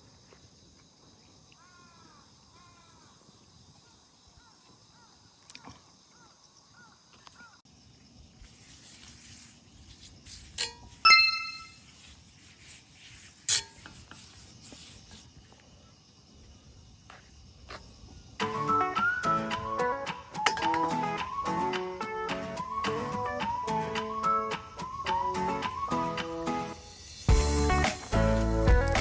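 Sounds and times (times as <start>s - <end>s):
faint steady hiss: 7.7s - 21.2s
metal cookware clinking: 10.6s - 11.7s.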